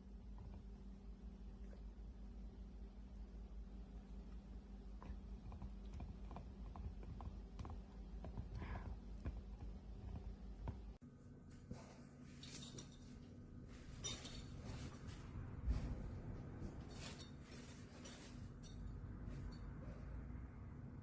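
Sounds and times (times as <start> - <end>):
light clicks and clinks: 12.3 - 16.0, 16.6 - 20.2.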